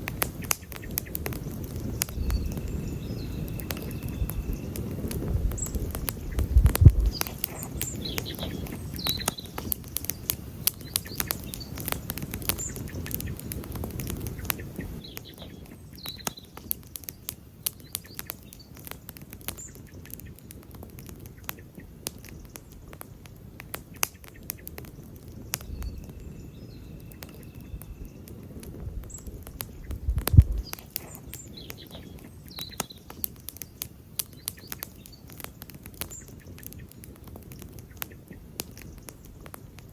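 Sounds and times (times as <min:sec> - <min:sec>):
campfire crackling and popping: 0:00.0 - 0:39.9
bird chirps: 0:00.2 - 0:20.4, 0:23.9 - 0:28.4, 0:29.0 - 0:39.3
low rumbles: 0:01.0 - 0:08.3, 0:27.7 - 0:30.8.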